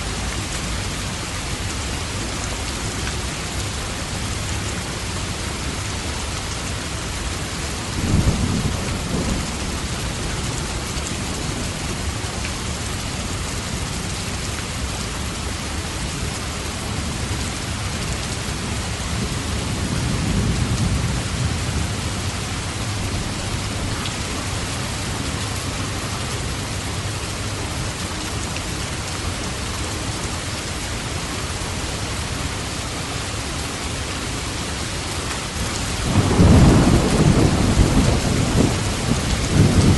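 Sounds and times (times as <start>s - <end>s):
heavy rain falling: 0.0s - 39.9s
low thunder rolling: 36.0s - 39.9s.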